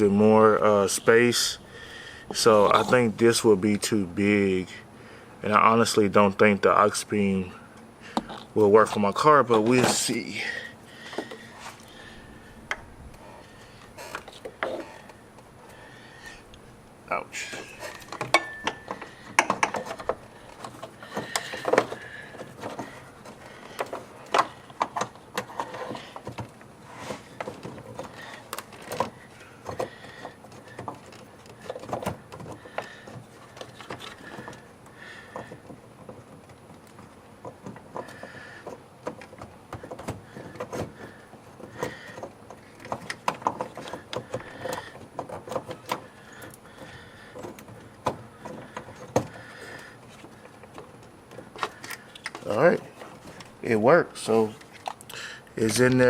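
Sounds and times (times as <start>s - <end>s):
small parts knocking together: 17.8s - 26.6s
plastic and metal parts clicking: 27.3s - 53.6s, 54.6s - 56.0s.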